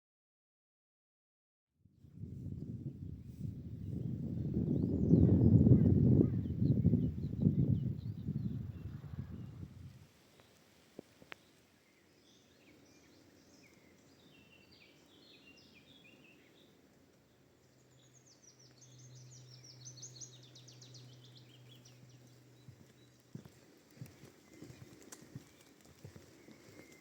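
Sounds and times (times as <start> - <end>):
faint birdsong chirping: 2.9 - 27.0.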